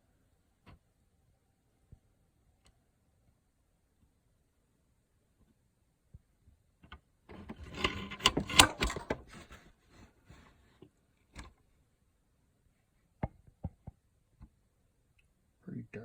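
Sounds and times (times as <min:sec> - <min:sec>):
rubbing and scraping: 0:07.3 - 0:10.8.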